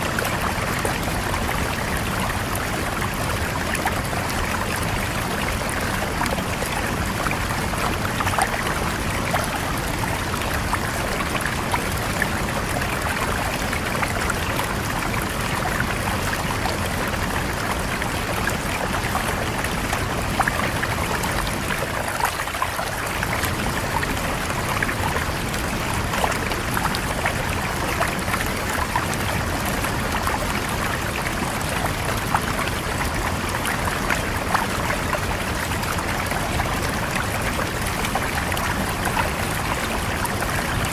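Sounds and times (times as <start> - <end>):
stream flowing with splashes: 0.0 - 40.9.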